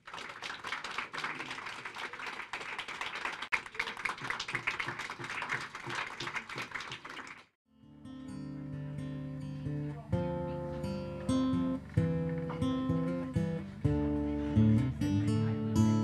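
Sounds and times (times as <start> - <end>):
audience applause: 0.0 - 7.6
acoustic guitar music: 7.7 - 16.0.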